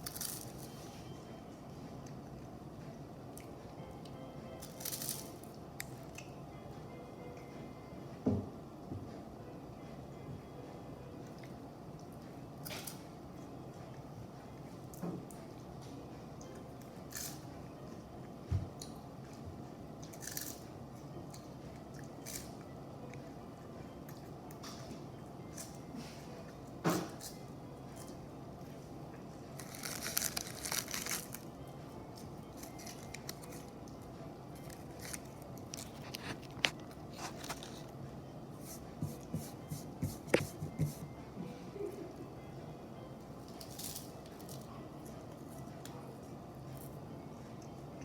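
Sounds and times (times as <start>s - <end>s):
crisp crunches and clicks: 29.6s - 31.5s, 32.2s - 34.0s, 34.6s - 37.9s.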